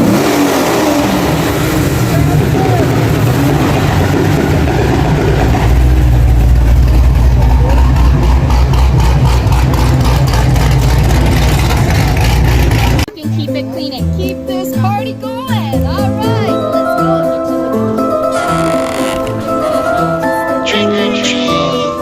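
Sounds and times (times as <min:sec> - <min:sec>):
loud car engine and exhaust: 0:00.0 - 0:13.1.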